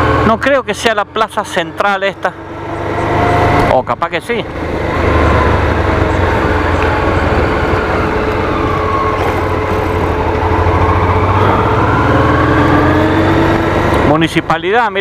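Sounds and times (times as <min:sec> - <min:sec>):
motorcycle engine running: 0:02.4 - 0:07.8.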